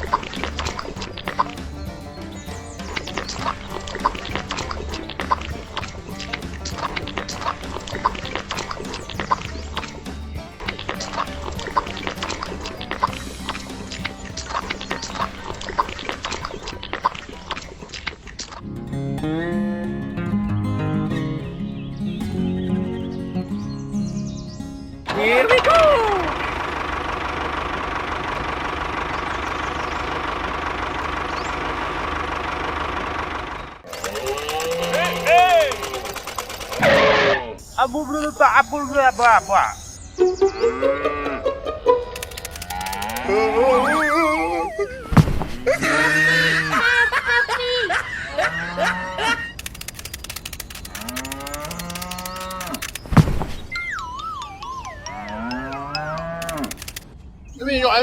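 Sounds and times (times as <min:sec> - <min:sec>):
small tractor engine running: 0:00.0 - 0:18.0, 0:26.0 - 0:37.0, 0:41.9 - 0:45.7, 0:49.6 - 0:54.8, 0:56.4 - 0:57.1
cattle mooing: 0:34.0 - 0:35.8, 0:40.4 - 0:41.6, 0:42.6 - 0:44.9, 0:48.3 - 0:49.4, 0:50.9 - 0:52.8, 0:55.0 - 0:56.7
heavy thump: 0:45.1 - 0:45.6, 0:53.1 - 0:53.6.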